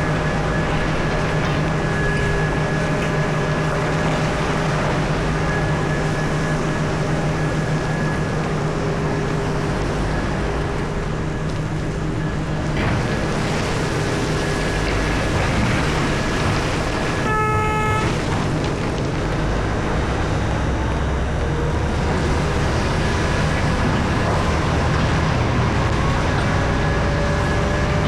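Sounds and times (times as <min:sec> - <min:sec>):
heavy machinery engines running: 0:00.0 - 0:28.0
horn blast: 0:17.2 - 0:18.3.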